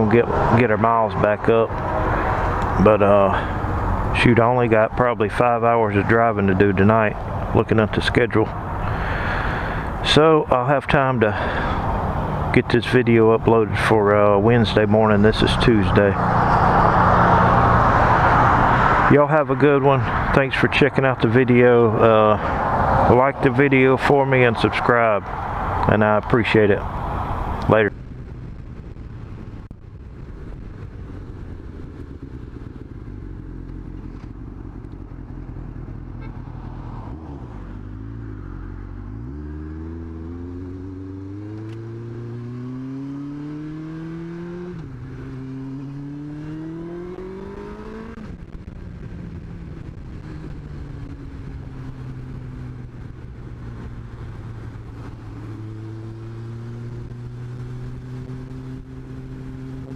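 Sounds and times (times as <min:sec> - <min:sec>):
motorcycle engine revving: 0:30.8 - 0:59.9.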